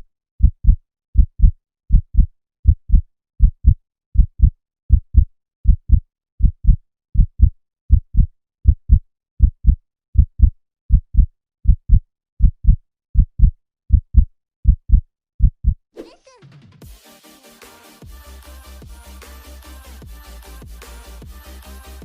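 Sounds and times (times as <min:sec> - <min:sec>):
heartbeat thumps: 0:00.4 - 0:15.8.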